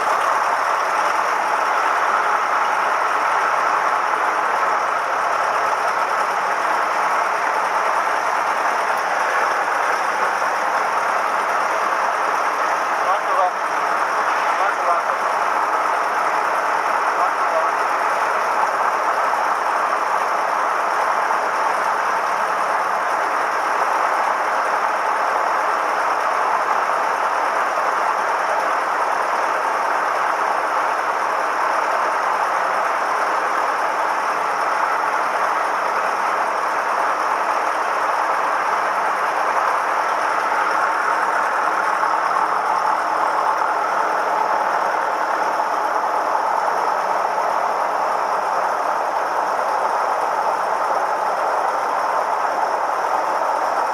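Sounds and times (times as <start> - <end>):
piston aircraft engine and propeller: 0.0 - 53.9.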